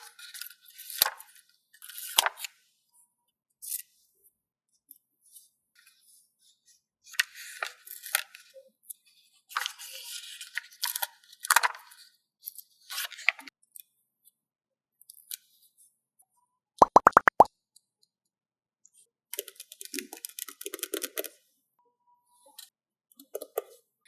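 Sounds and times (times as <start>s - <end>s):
sharp clicks: 16.8s - 17.5s.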